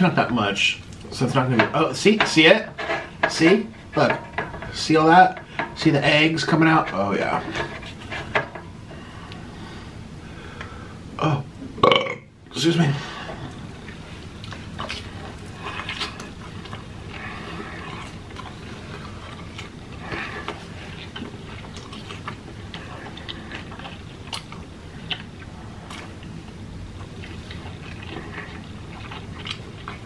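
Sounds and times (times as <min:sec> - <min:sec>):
person chewing food: 0:13.3 - 0:30.0.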